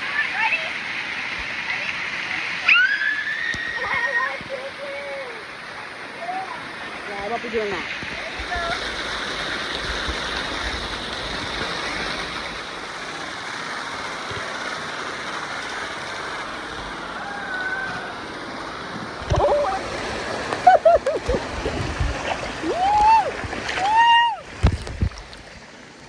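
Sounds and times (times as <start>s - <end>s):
flowing river water: 0.0s - 26.0s
water splashing: 0.0s - 26.0s.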